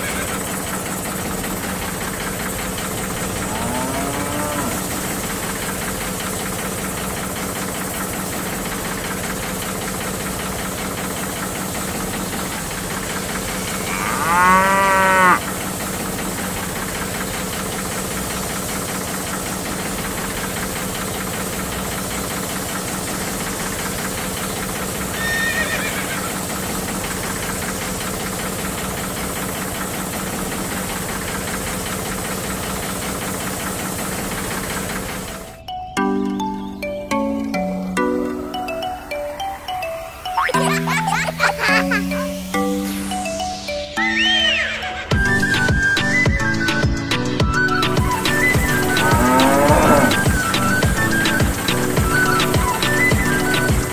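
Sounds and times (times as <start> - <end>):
electric water pump humming: 0.0 - 35.5, 48.3 - 53.9
cow mooing: 3.1 - 5.3, 13.8 - 15.5, 48.6 - 50.7.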